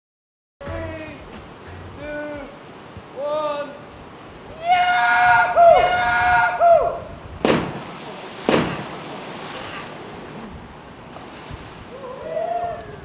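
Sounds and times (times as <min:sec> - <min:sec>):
loud booming hits: 0:07.4 - 0:09.1
trailing hiss: 0:07.4 - 0:13.0.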